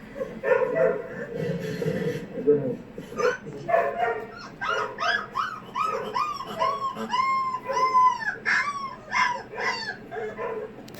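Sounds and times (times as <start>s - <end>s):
puppy howling and yelping: 3.2s - 10.8s.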